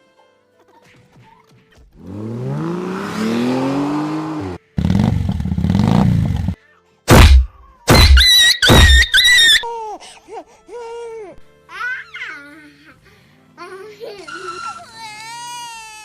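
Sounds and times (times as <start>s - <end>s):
vehicle engine revving: 1.9s - 6.6s
very loud burst: 7.1s - 9.4s.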